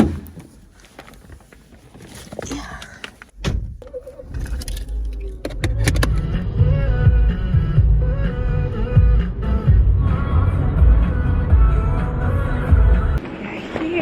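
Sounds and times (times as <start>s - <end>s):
sharp clicks and thuds: 0.0s - 6.3s
door shutting: 3.3s - 6.2s
low rumble: 3.4s - 13.2s.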